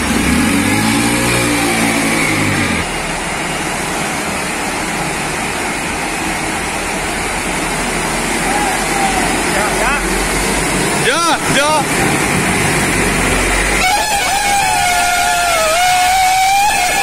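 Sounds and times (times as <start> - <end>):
steady rushing noise: 0.0 - 17.0
vehicle engine running: 0.0 - 17.0.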